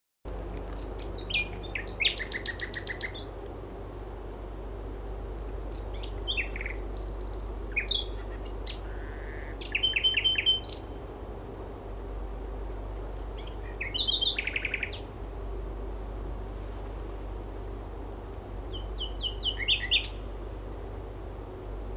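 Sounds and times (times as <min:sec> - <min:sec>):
steady low hum: 0:00.3 - 0:21.9
nightingale singing: 0:00.8 - 0:03.4, 0:05.6 - 0:11.0, 0:13.4 - 0:15.1, 0:18.7 - 0:20.3.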